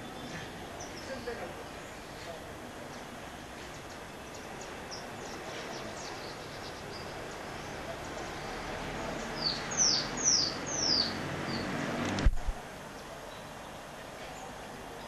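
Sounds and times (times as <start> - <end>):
birds chirping: 0.0 - 12.0
background hiss: 0.0 - 15.0.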